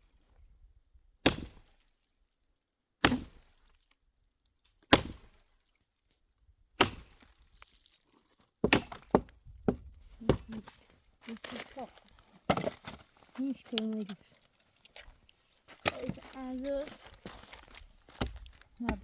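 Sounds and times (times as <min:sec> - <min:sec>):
firewood being chopped: 0:01.2 - 0:01.8, 0:03.0 - 0:03.7, 0:04.9 - 0:05.5, 0:06.8 - 0:07.9, 0:08.6 - 0:19.0.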